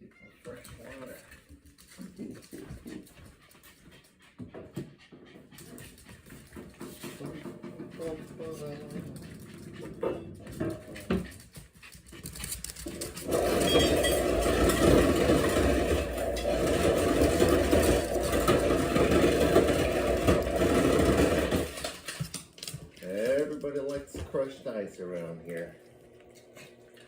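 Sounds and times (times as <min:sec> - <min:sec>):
ice dispenser crushing ice: 0:12.9 - 0:22.4.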